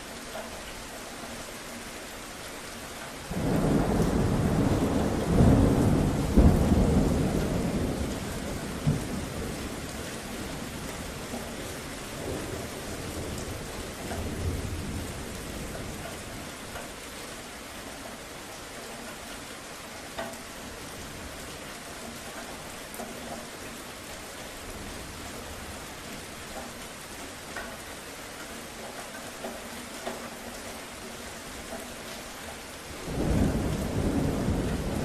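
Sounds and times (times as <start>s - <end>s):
steady rain falling: 0.0s - 35.0s
low thunder rumble: 3.3s - 11.4s, 33.0s - 35.0s.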